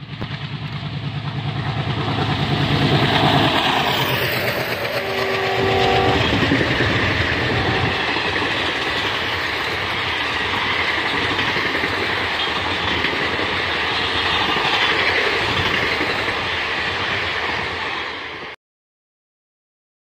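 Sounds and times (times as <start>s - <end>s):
train wheels rumbling on track: 0.0s - 18.6s.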